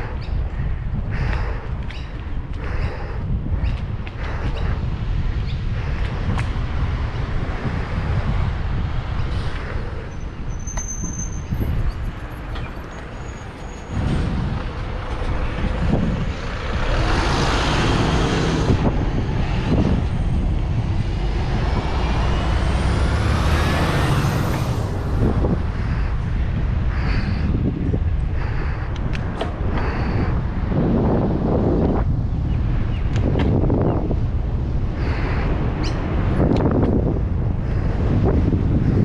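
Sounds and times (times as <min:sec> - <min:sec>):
road vehicles passing: 0:00.0 - 0:39.0
wind buffeting microphone: 0:00.0 - 0:39.0.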